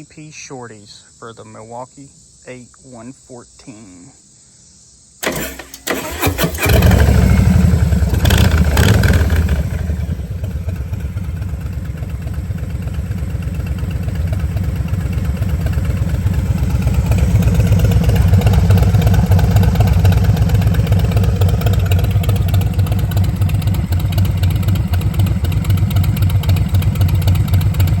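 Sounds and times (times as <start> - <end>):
motorcycle engine idling: 6.0 - 28.0.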